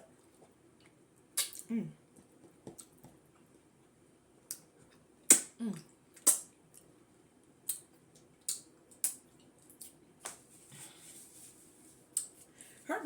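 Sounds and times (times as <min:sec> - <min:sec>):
wet mouth smacks eating: 0:01.4 - 0:01.7, 0:05.3 - 0:06.5.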